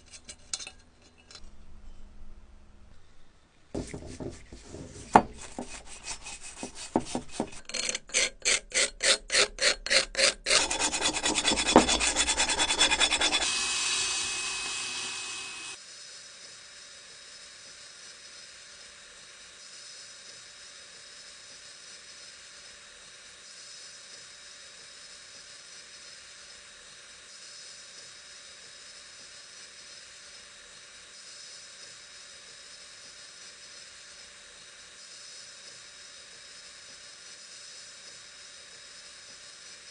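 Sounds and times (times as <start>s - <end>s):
hand filing strokes on metal: 3.8s - 15.8s.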